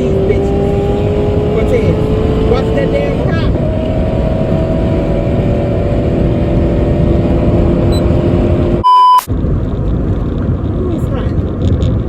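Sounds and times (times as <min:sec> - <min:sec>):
road and engine noise in car: 0:00.0 - 0:12.0
censor bleep: 0:07.9 - 0:08.2, 0:08.8 - 0:09.3.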